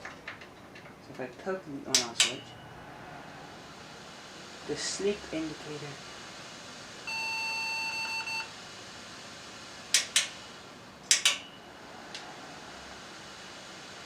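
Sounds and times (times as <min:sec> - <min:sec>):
high steady computer beep: 0:07.1 - 0:08.5.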